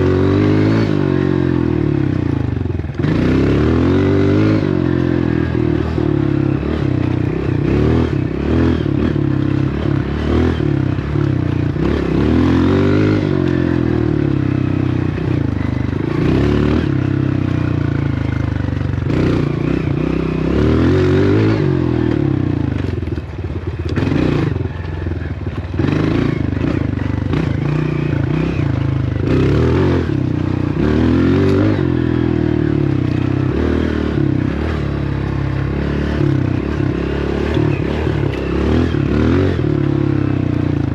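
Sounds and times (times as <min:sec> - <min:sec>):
dirt bike engine revving: 0:00.0 - 0:23.2, 0:23.9 - 0:40.9
clatter: 0:21.7 - 0:29.4, 0:34.6 - 0:40.9.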